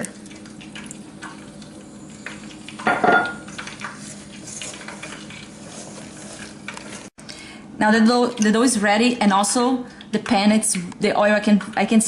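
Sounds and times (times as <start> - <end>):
utensil stirring batter in bowl: 2.5 - 7.2.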